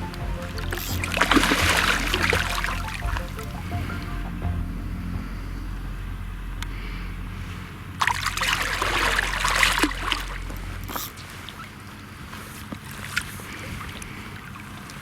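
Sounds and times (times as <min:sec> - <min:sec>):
fish splashing in water: 0:08.0 - 0:11.7.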